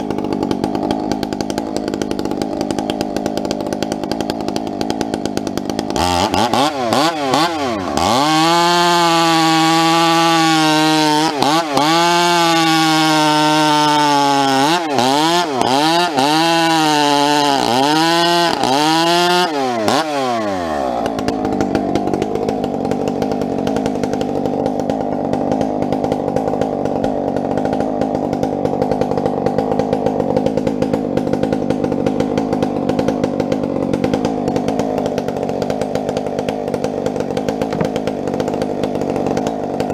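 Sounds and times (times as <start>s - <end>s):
chainsaw cutting firewood: 0.0s - 39.9s.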